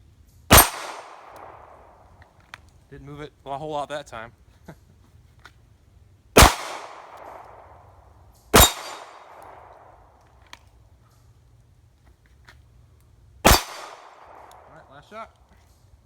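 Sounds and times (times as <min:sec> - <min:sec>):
metallic ring of steel target: 0:00.5 - 0:01.3, 0:08.6 - 0:09.3
pistol shots with echo: 0:00.5 - 0:02.0, 0:06.4 - 0:10.1, 0:13.4 - 0:15.0.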